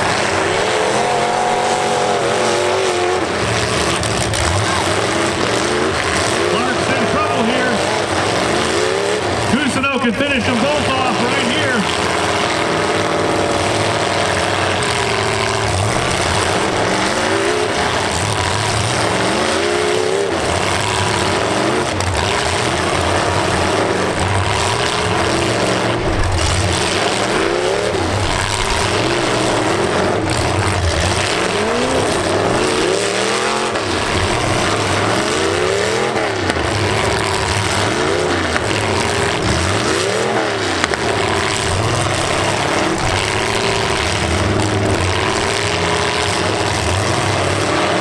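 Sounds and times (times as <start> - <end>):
car engines revving hard: 0.0 - 48.0
steady wash of noise: 9.5 - 11.9.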